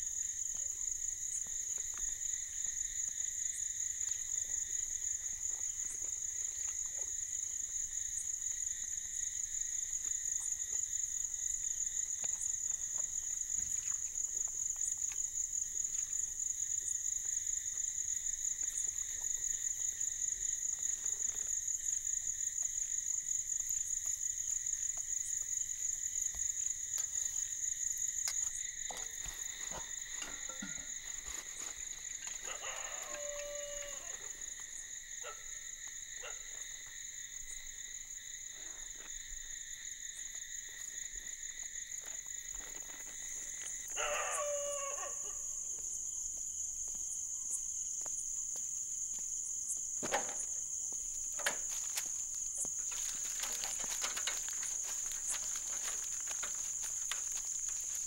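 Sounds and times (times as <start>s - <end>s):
crickets chirring: 0.0s - 58.0s
rooster crowing: 32.4s - 34.3s, 43.9s - 45.5s.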